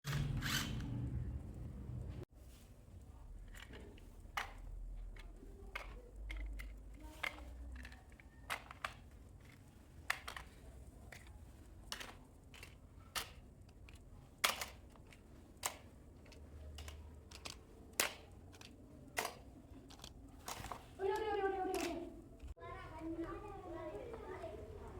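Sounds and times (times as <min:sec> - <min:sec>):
toy cars clicking and knocking: 0:00.1 - 0:01.2, 0:03.3 - 0:24.9
low rumble: 0:00.1 - 0:02.3.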